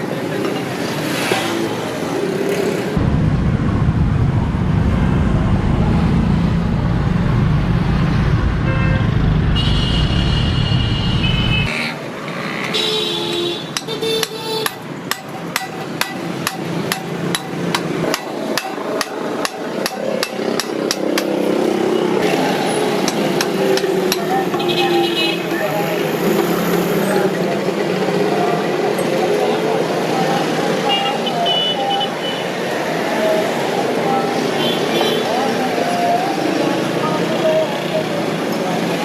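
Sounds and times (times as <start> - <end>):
loud low rumble: 3.0 - 11.7
hammering on metal: 13.7 - 21.4, 23.0 - 24.7.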